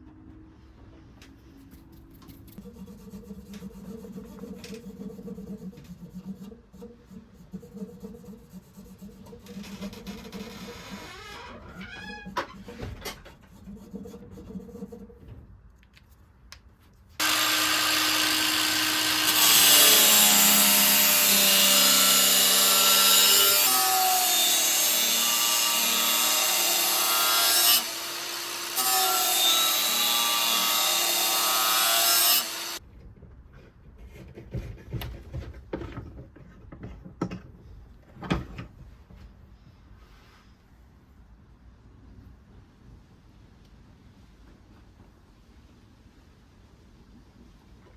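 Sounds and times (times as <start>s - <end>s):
angle grinder grinding steel: 17.2s - 32.8s.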